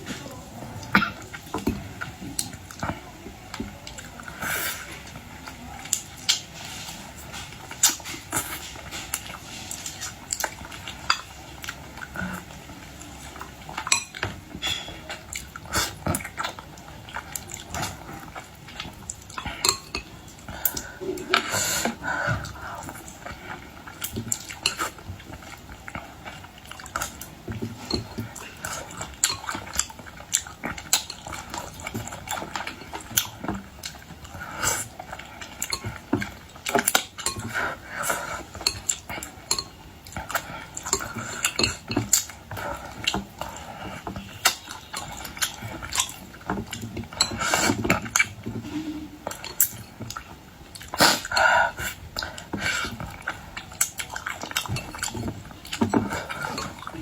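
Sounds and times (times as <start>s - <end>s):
wet chewing and sucking: 0.0s - 57.0s
clinks of shells and dishes: 13.8s - 15.2s.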